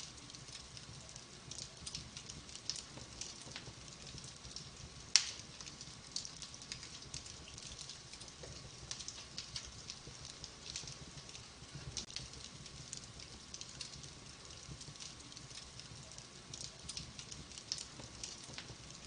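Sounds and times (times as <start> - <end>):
wood fire crackling: 0.0 - 19.0
loud pop from fire: 5.1 - 5.7.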